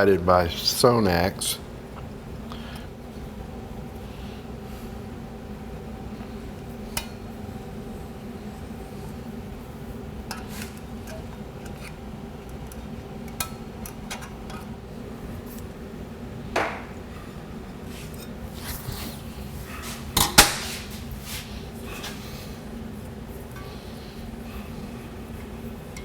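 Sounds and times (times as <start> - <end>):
steady hum: 0.0 - 26.0
metallic snaps: 20.2 - 20.8.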